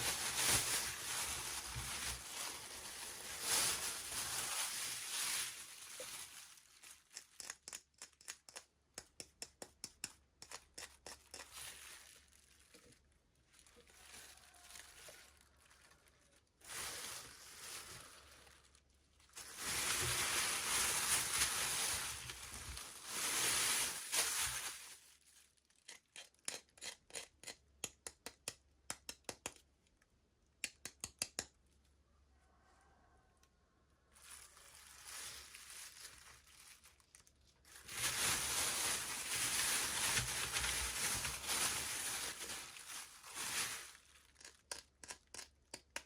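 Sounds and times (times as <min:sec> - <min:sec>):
plastic packaging crinkling: 0:00.0 - 0:08.4, 0:10.6 - 0:25.9, 0:34.2 - 0:45.5.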